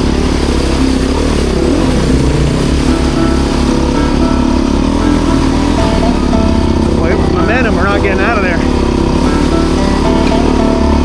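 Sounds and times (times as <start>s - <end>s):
motorcycle engine under throttle: 0.0s - 11.0s.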